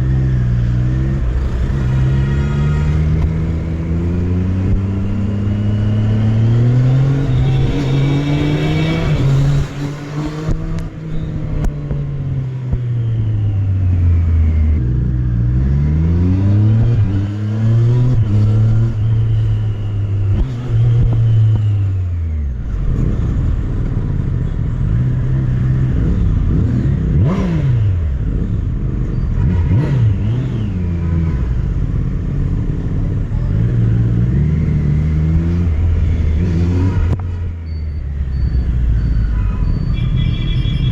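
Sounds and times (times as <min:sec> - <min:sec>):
motorcycle engine accelerating: 0:00.0 - 0:39.0.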